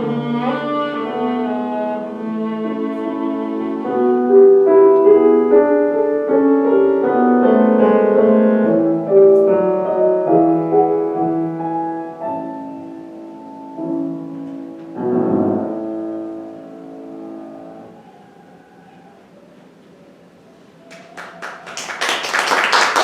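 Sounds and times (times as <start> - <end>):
classical piano music: 0.0 - 18.0.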